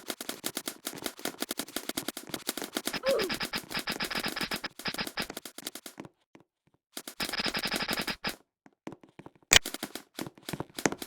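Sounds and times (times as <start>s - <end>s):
scattered clicks: 2.8s - 5.9s, 7.0s - 8.4s, 9.5s - 11.0s
airsoft gun firing bursts: 7.0s - 8.4s, 9.5s - 10.0s.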